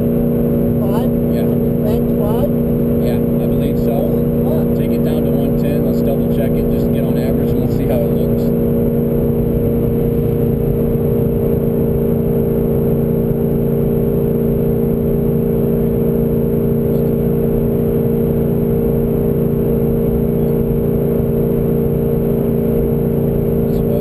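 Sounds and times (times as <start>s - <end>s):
car cabin engine and road drone: 0.0s - 24.0s.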